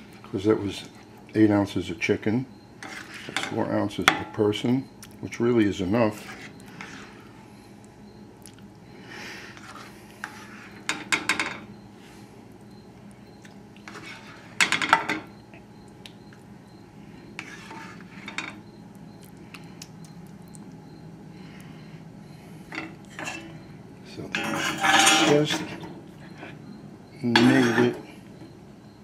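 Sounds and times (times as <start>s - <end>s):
utensil clinking against dishes: 24.2s - 25.9s.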